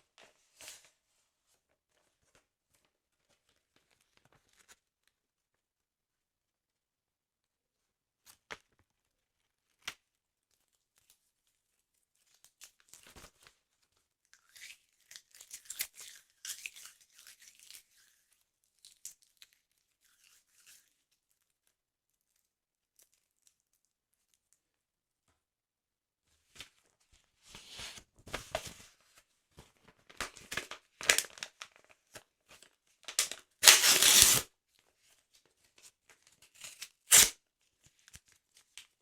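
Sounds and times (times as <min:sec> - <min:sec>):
paper tearing slowly: 0:33.6 - 0:34.5, 0:36.5 - 0:37.4.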